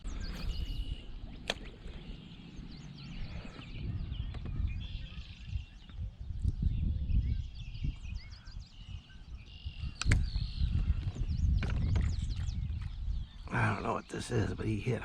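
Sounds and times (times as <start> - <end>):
birds chirping: 0.0 - 15.0
wind buffeting microphone: 0.0 - 15.0
sharp click: 10.0 - 10.3.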